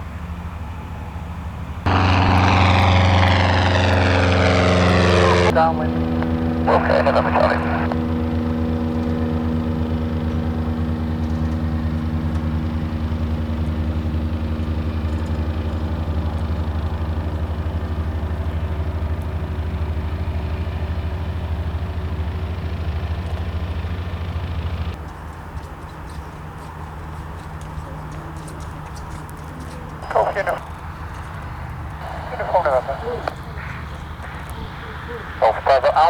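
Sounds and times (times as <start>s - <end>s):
propeller aircraft engine running: 0.0s - 36.0s.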